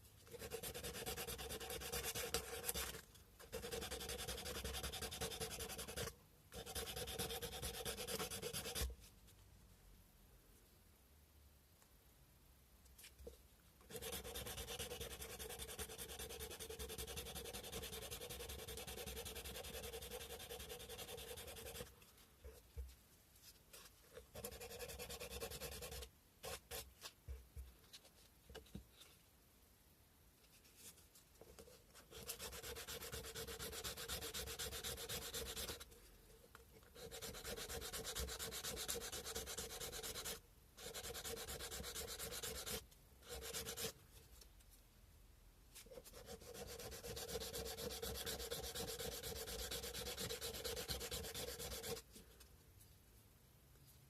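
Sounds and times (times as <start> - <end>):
sandpaper rubbing on bone: 46.2 - 52.0.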